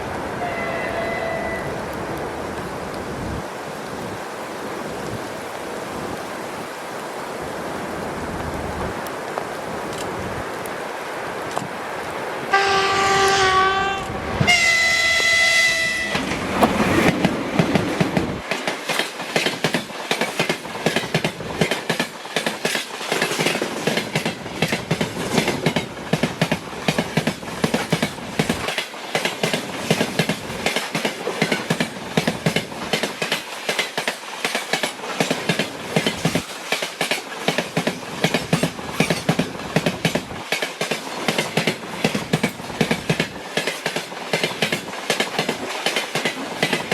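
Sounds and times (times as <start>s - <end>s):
locomotive horn blasts: 0.4s - 1.8s, 12.5s - 16.2s.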